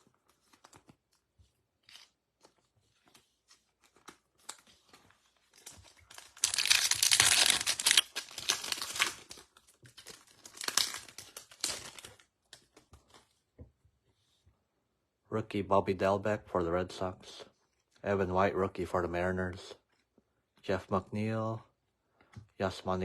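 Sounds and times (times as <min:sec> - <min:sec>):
cards being handled: 0:00.0 - 0:13.4
foil wrapper tearing and crinkling: 0:03.6 - 0:12.3.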